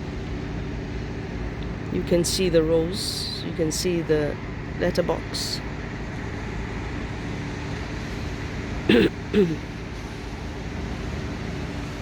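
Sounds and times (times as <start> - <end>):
water pumps droning: 0.0 - 12.0
person's short vocal sounds: 8.9 - 9.6.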